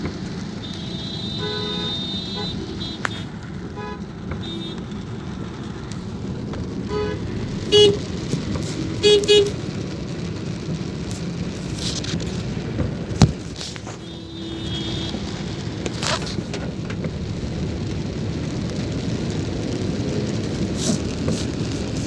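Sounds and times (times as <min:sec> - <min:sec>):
car road noise: 0:00.0 - 0:22.0
steady rain: 0:00.0 - 0:22.0
car horn honking: 0:00.6 - 0:04.9, 0:06.9 - 0:08.1, 0:09.0 - 0:09.6, 0:13.9 - 0:15.6.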